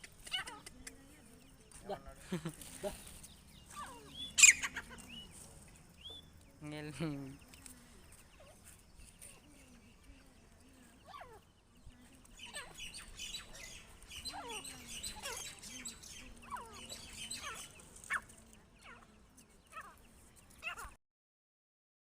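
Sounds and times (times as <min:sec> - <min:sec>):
high bird twittering: 0:00.0 - 0:21.0
short squeaky bird calls: 0:02.9 - 0:06.3, 0:12.3 - 0:19.1.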